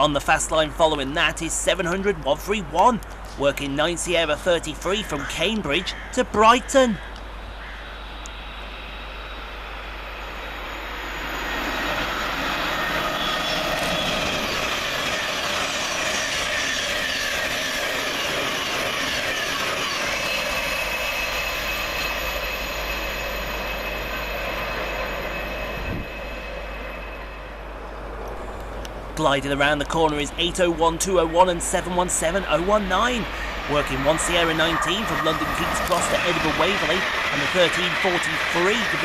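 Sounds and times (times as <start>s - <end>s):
train wheels rushing on rail: 7.2s - 39.0s
train whine sliding down in pitch: 7.4s - 29.2s, 30.8s - 39.0s.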